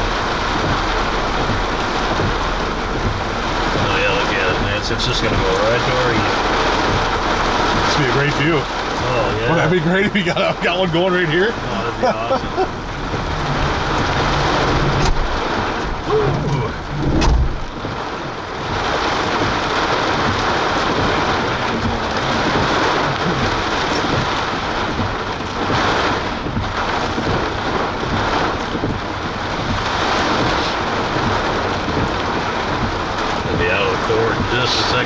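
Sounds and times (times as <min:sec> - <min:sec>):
rain pattering on vehicle: 0:00.0 - 0:35.0
short low thump: 0:00.5 - 0:03.9, 0:12.7 - 0:18.0.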